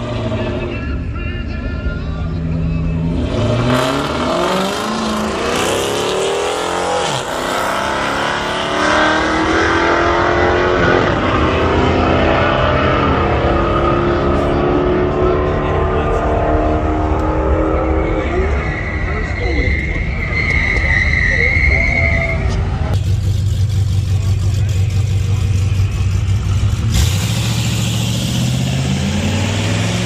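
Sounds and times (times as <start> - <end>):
engine revving hard: 3.1 - 17.9, 23.0 - 30.0.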